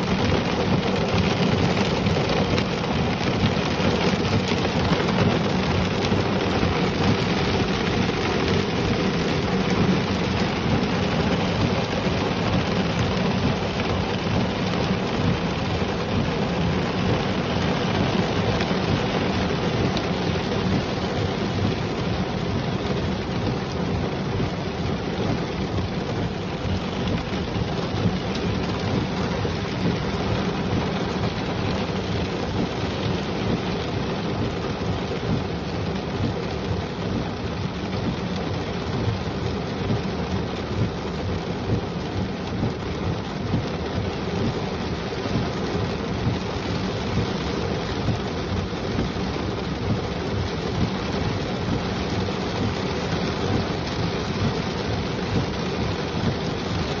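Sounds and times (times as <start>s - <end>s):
heavy rain on a car roof: 0.0s - 57.0s.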